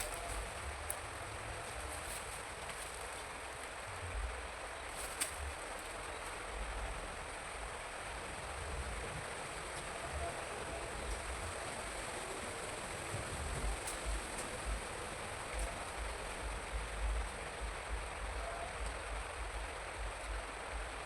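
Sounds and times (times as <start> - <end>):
outdoor hiss: 0.0 - 21.0
faint clicks: 4.9 - 6.4, 13.6 - 15.8.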